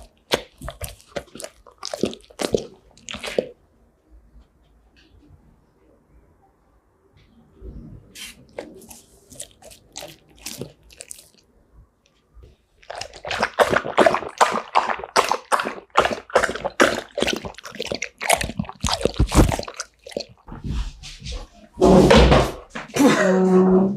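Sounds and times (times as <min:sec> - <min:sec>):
dog chewing noisily: 0:00.0 - 0:03.6, 0:08.6 - 0:11.4, 0:12.8 - 0:20.6.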